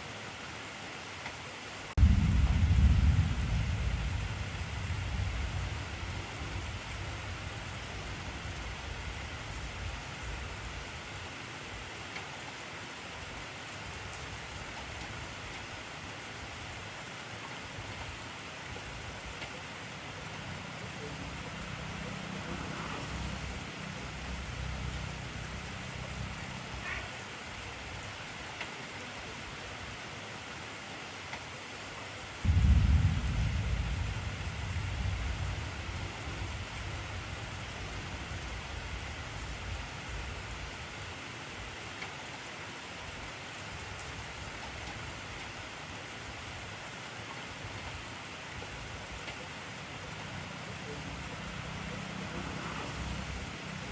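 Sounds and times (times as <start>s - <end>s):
heavy rain hissing: 0.0s - 31.2s, 32.2s - 53.9s
distinct raindrops: 1.2s - 11.1s, 12.1s - 28.8s, 32.4s - 53.9s
thunder rolling: 2.0s - 10.0s, 32.4s - 39.8s.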